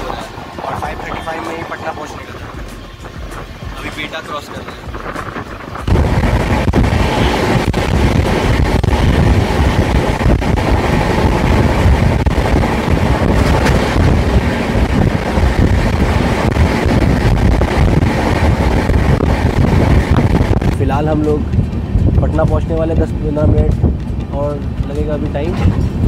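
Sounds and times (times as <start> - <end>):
train wheels rumbling on rails: 0.0 - 26.0
wind rushing over microphone: 0.0 - 26.0.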